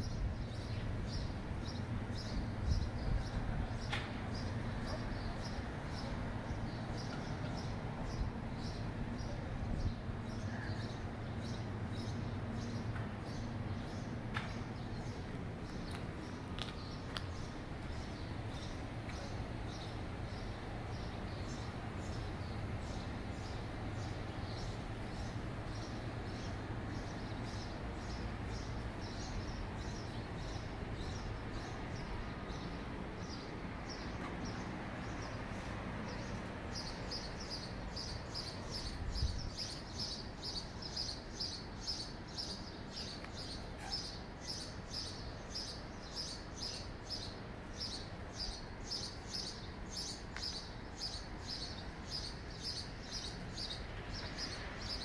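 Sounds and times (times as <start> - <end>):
low city background noise: 0.0 - 55.0.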